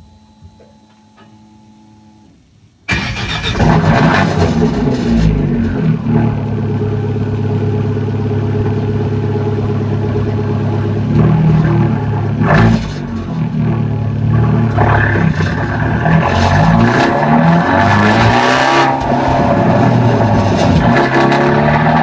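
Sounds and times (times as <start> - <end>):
car engine idling: 2.9 - 22.0
engine revving: 2.9 - 22.0.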